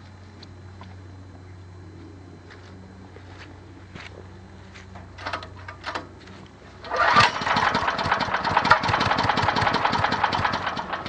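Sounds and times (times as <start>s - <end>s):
generator engine running: 2.3s - 11.0s.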